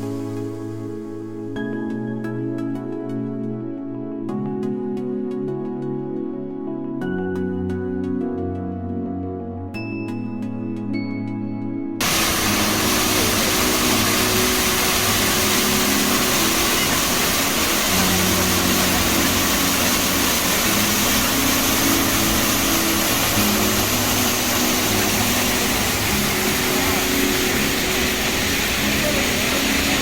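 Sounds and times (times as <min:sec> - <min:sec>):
stream water rushing: 0:12.0 - 0:30.0.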